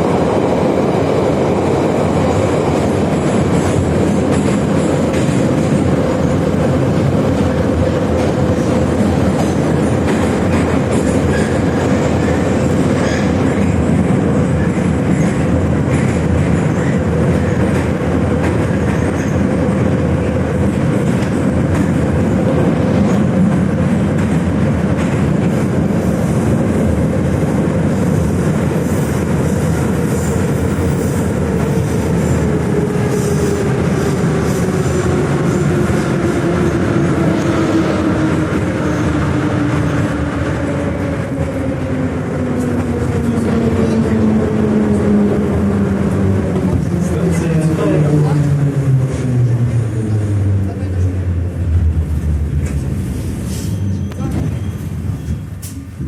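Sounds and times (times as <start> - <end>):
metro train wheel noise: 0.0 - 56.0.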